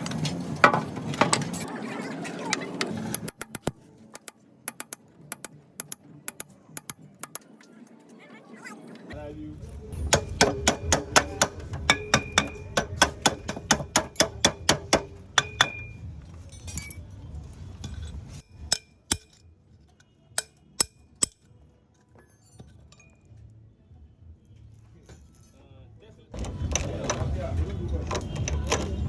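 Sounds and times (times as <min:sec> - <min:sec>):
metal tool clicking: 0:02.9 - 0:07.6.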